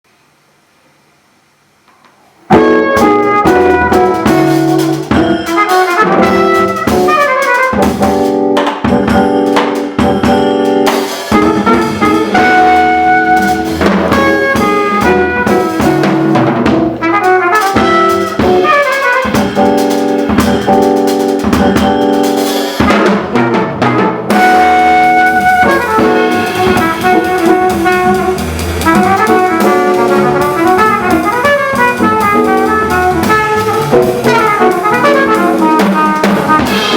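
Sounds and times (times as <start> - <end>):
guitar: 2.5 - 8.2, 8.8 - 22.3, 23.4 - 35.7
trumpet: 2.5 - 8.4, 10.9 - 36.9
drum kit and ride cymbal: 2.5 - 36.9
upright bass: 11.3 - 18.6, 23.6 - 35.8.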